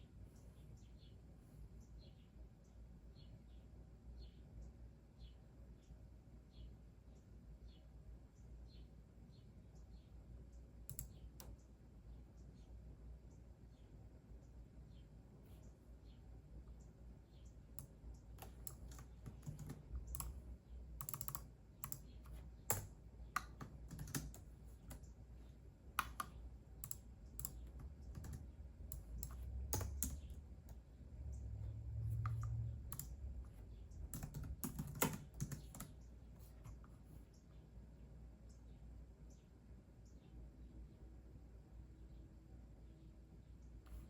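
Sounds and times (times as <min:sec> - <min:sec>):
computer keyboard typing: 0:10.9 - 0:11.6, 0:17.8 - 0:25.1, 0:25.9 - 0:30.8, 0:31.6 - 0:36.9.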